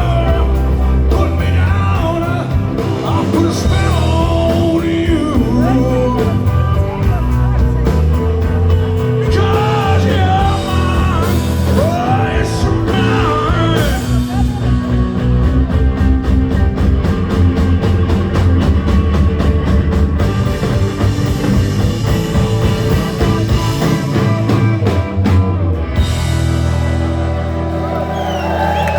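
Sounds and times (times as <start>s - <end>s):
person singing: 0.0s - 15.0s
rock band playing: 0.0s - 28.9s.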